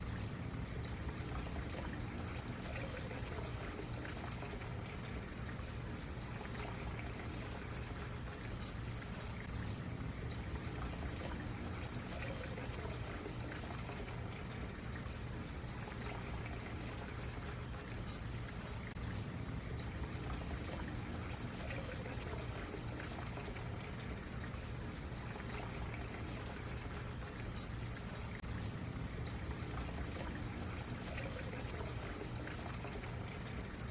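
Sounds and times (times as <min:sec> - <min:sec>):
stream water trickling: 0:00.0 - 0:33.9.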